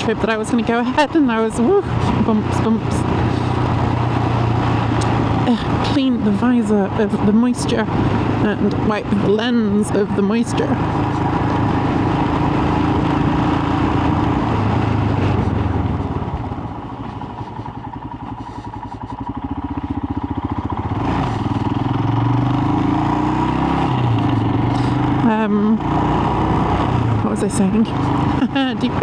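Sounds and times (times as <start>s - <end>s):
wind noise: 0.0s - 19.3s
motorcycle engine running: 0.0s - 29.0s
road noise: 0.0s - 29.0s.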